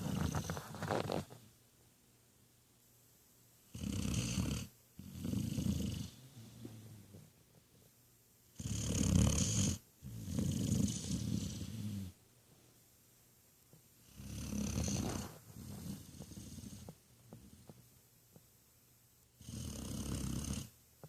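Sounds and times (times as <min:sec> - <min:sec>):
puppy snoring: 0:00.0 - 0:01.4, 0:03.7 - 0:07.3, 0:08.6 - 0:12.2, 0:14.0 - 0:17.8, 0:19.4 - 0:20.8.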